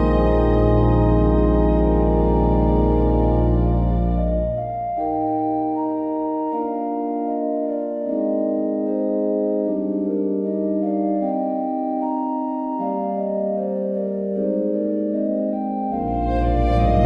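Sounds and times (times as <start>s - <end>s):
slow organ-like keyboard chords: 0.0s - 17.0s
deep bass note: 16.1s - 17.0s.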